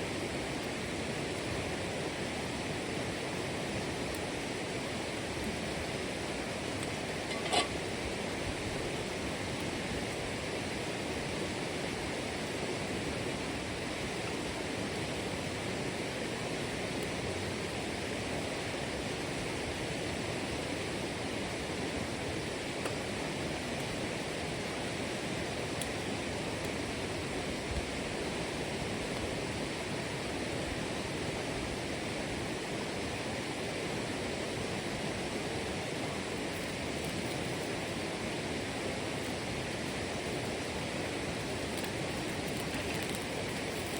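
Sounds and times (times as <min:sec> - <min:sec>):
running water rushing: 0:32.0 - 0:43.9.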